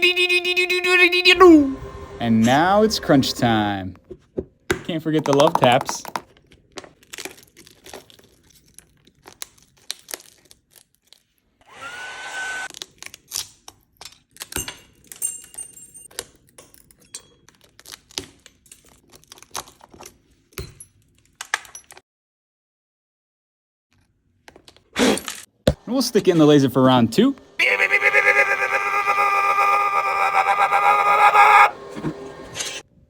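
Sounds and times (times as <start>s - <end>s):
small motorised air blower: 11.6s - 12.7s.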